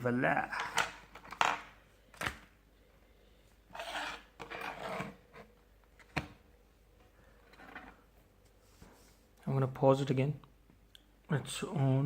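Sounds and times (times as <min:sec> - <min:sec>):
soft rubbing: 0:07.4 - 0:09.4.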